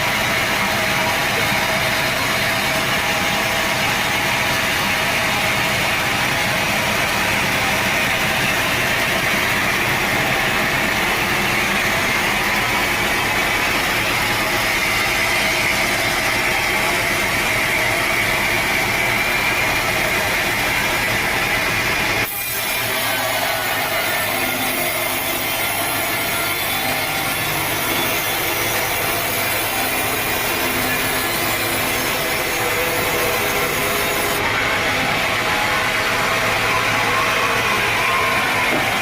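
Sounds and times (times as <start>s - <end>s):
sawmill saw whining: 0.0s - 39.0s.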